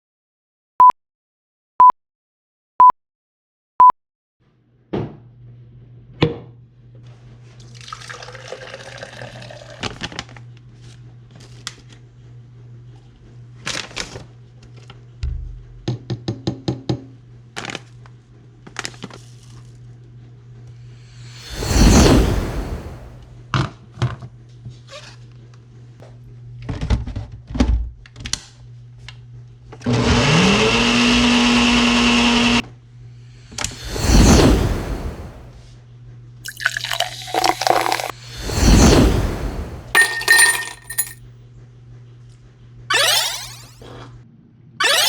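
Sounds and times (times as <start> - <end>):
water running into a container: 7.8 - 10.0, 36.5 - 38.1.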